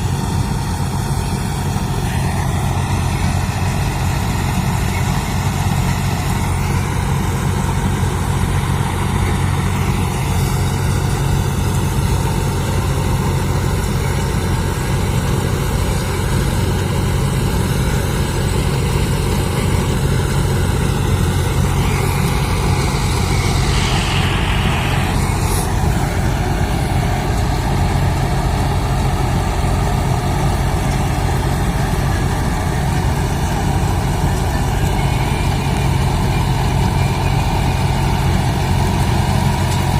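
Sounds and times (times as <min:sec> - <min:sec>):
combine harvester engine droning: 0:00.0 - 0:39.9
brief hiss: 0:21.5 - 0:27.7.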